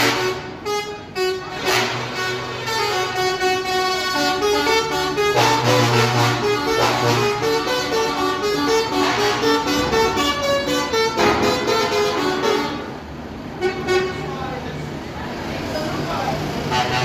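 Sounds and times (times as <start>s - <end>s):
low horn tone: 0.0s - 13.0s
truck horns honking: 0.0s - 15.0s, 15.8s - 17.0s.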